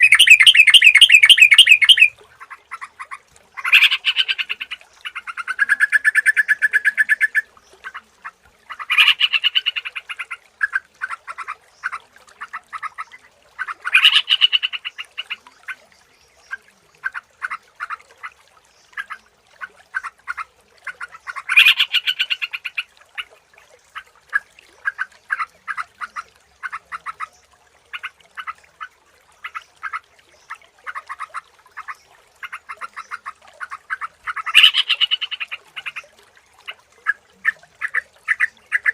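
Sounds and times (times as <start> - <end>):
bird warbling song: 0.0 - 2.1, 3.6 - 8.0, 8.7 - 10.8, 12.8 - 16.6, 21.0 - 23.3, 31.8 - 36.1.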